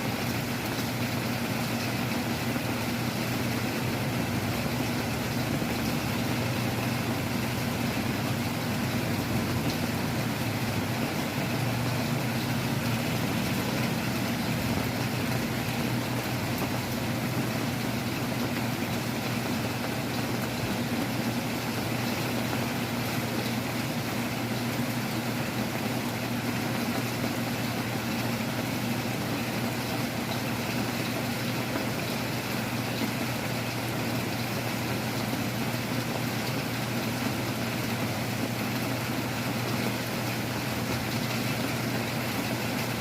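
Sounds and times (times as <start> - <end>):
heavy rain: 0.0 - 43.0
wind: 0.0 - 43.0.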